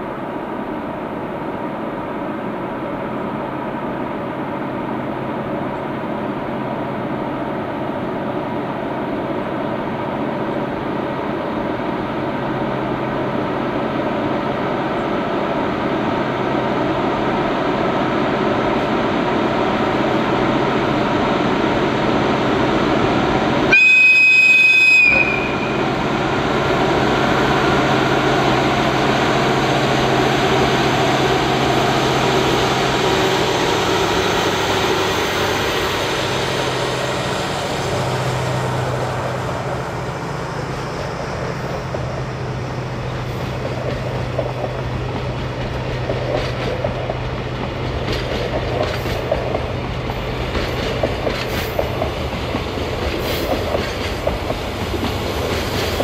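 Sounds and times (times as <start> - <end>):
diesel train running: 0.0 - 56.0
train horn blast: 23.7 - 25.9.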